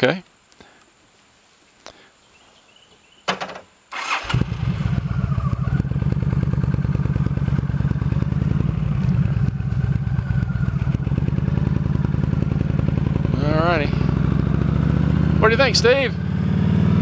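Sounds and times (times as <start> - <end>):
motorcycle engine idling: 4.0 - 14.9.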